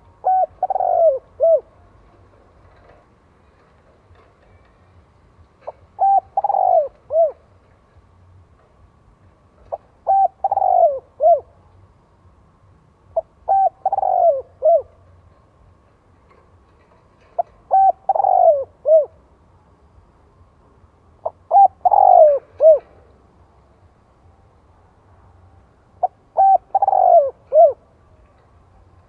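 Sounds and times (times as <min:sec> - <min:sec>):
dove cooing: 0:00.0 - 0:01.8, 0:05.7 - 0:07.5, 0:09.7 - 0:11.6, 0:13.2 - 0:15.0, 0:17.3 - 0:19.2, 0:21.2 - 0:23.1, 0:26.0 - 0:27.9.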